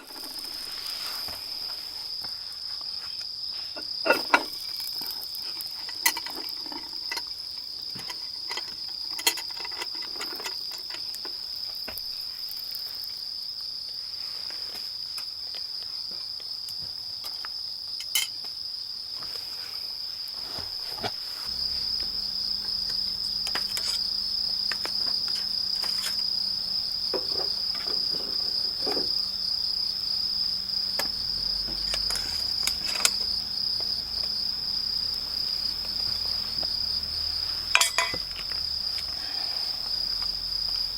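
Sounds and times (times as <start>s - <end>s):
insects trilling: 0.0s - 40.9s
faint low hum: 21.5s - 40.9s.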